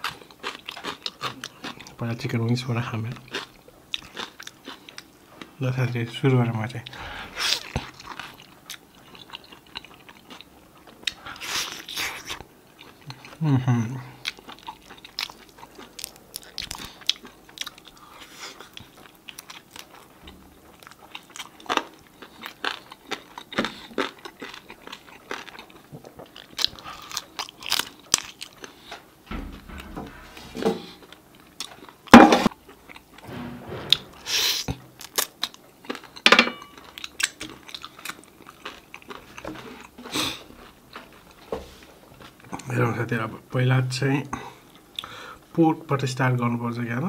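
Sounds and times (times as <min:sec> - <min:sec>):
crunchy chewing and biting: 0:00.0 - 0:02.0, 0:20.7 - 0:29.0.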